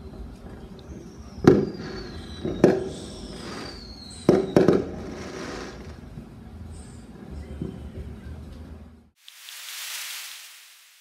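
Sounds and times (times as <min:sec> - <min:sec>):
fireworks bangs: 0:01.0 - 0:06.0.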